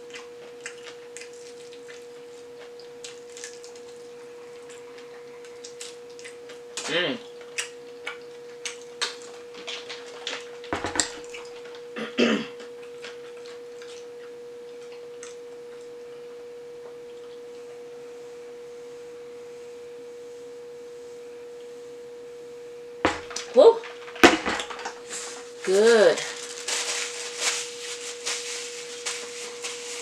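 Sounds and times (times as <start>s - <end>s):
steady hum: 0.0s - 30.0s
mouth chewing clicks and smacks: 7.4s - 9.4s.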